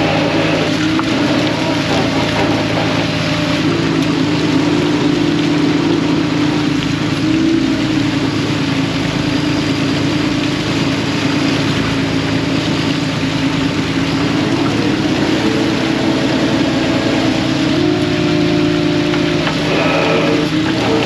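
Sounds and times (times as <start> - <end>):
boat engine running: 0.0 - 21.0
steady rushing noise: 10.9 - 21.0.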